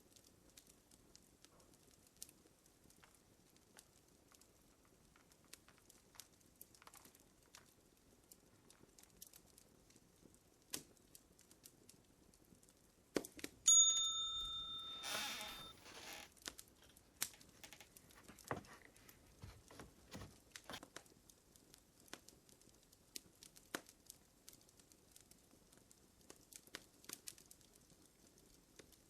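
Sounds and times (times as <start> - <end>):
fire crackling and popping: 0.0 - 13.7, 15.8 - 29.0
bell-like ding: 13.7 - 15.7.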